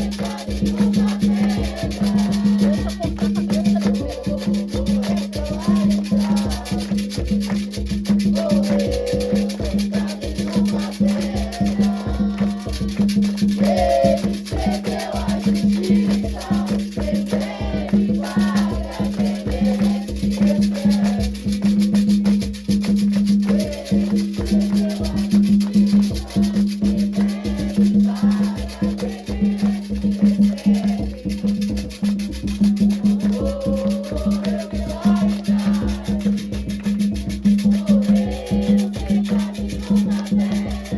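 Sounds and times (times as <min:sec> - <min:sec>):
voices singing: 0:00.0 - 0:22.4, 0:23.2 - 0:40.9
hand drums beating: 0:00.0 - 0:40.9
shaken rattles: 0:00.0 - 0:40.9.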